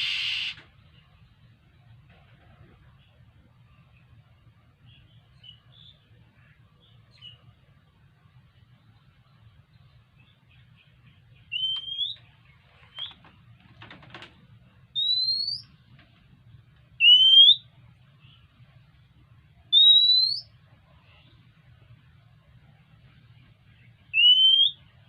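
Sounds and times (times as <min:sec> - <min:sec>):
bird whistled call: 0:00.0 - 0:00.6, 0:11.4 - 0:12.3, 0:12.9 - 0:13.2, 0:15.0 - 0:15.7, 0:17.0 - 0:17.7, 0:19.7 - 0:20.5, 0:24.1 - 0:24.9
bird scratchy rattle: 0:12.6 - 0:14.4.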